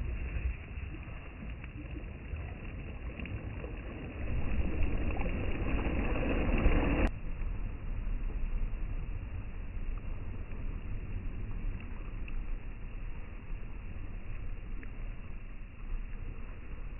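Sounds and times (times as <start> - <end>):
sea waves washing: 0.0 - 7.1
wind noise: 0.0 - 16.9.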